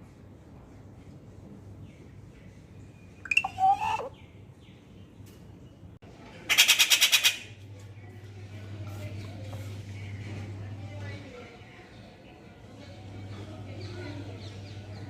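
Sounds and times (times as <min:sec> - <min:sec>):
bird harsh call: 0:03.2 - 0:04.2, 0:06.5 - 0:07.6.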